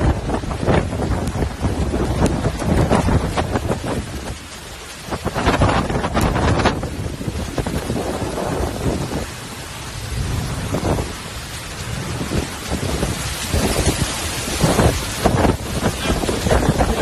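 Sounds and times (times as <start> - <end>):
heavy rain: 0.0 - 17.0
strong wind gusting over microphone: 0.0 - 17.0
low rumble: 5.4 - 17.0.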